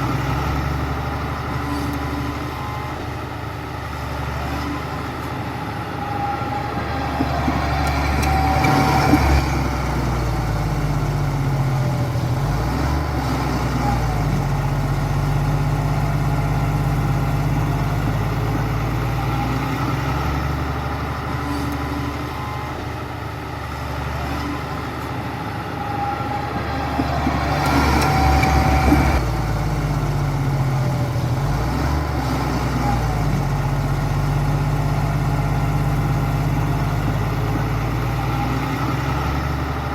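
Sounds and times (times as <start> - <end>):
diesel earthmoving machine running: 0.0 - 39.9
high metallic squeals: 4.2 - 12.0, 24.0 - 29.2.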